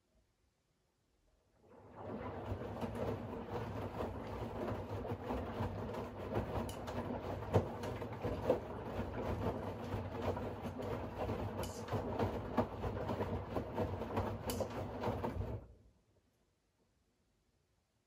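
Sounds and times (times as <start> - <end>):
washing machine drum rumbling: 1.7 - 15.7.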